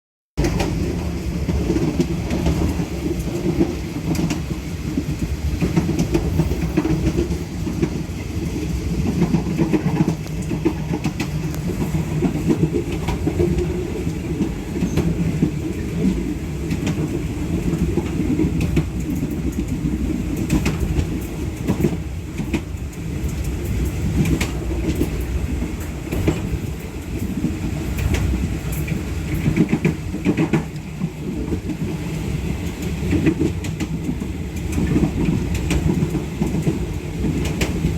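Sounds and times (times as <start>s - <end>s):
train carriage rumble: 0.4s - 37.9s
train wheels clacking on rails: 0.4s - 37.9s.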